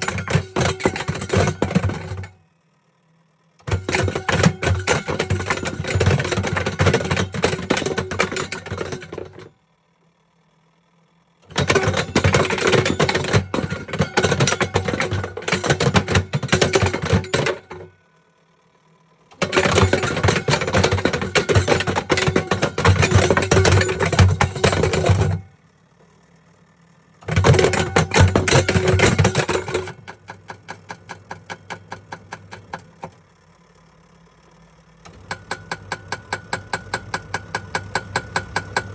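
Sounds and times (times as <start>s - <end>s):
kettle clattering in washing machine drum: 0.0s - 2.3s, 3.7s - 9.4s, 11.5s - 17.9s, 19.4s - 25.4s, 27.3s - 33.1s.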